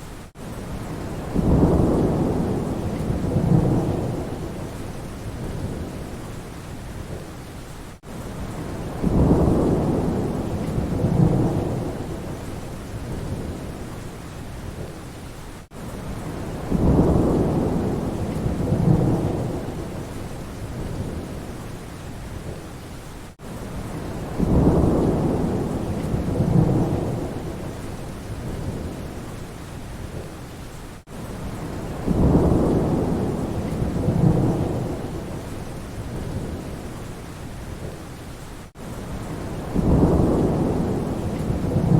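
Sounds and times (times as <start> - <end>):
steady rain: 0.0 - 41.9
rolling thunder: 0.8 - 6.2, 8.5 - 13.8, 16.2 - 21.5, 23.8 - 29.2, 31.4 - 36.8, 39.1 - 41.9.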